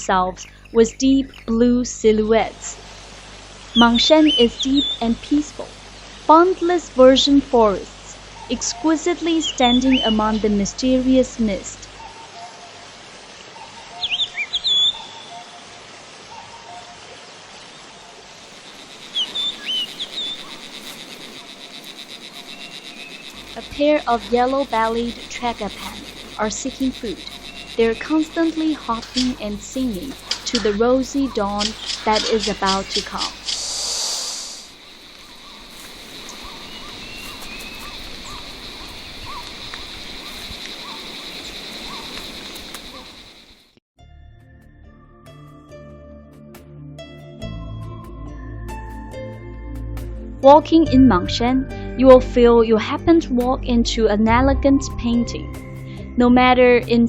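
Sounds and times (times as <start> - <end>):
songbirds chirping: 0.0 - 43.7
steady background hiss: 1.6 - 43.6
high bird trill: 3.8 - 5.2, 8.0 - 12.7, 13.6 - 15.5, 18.6 - 43.6
high-pitched insect drone: 18.5 - 43.8
rising and falling animal call: 18.6 - 35.6.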